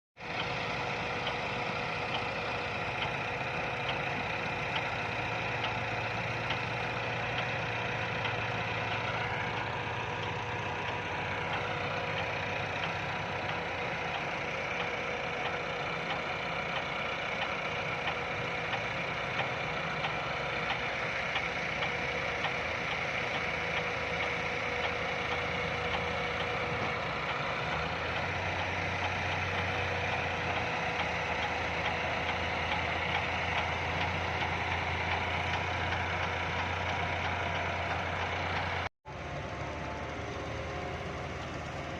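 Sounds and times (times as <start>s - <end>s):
diesel engine running: 0.2s - 41.9s.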